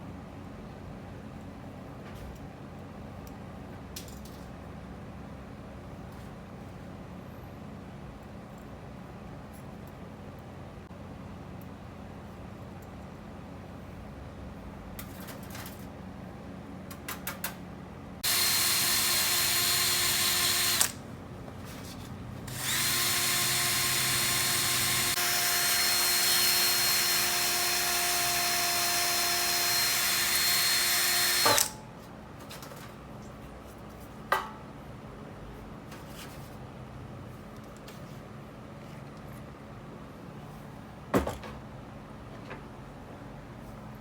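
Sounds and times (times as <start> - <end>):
power drill whining: 18.2 - 21.0, 22.5 - 31.8.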